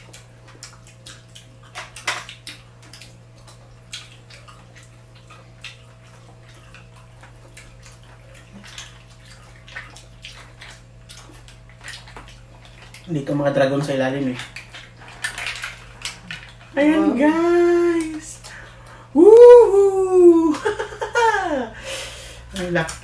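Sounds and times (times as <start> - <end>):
wet chewing and sucking: 0.0 - 13.1
steady low hum: 0.0 - 23.0.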